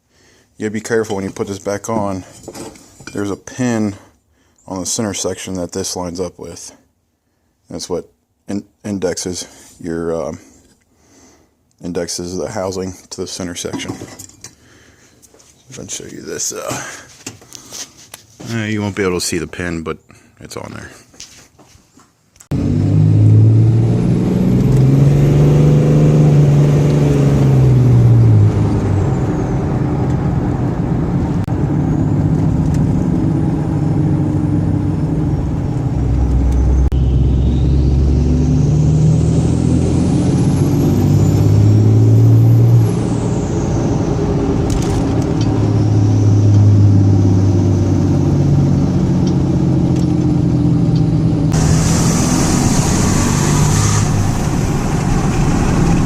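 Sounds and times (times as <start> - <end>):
diesel engine revving: 22.5 - 56.0
turbocharger whistling: 22.6 - 30.5, 31.5 - 56.0.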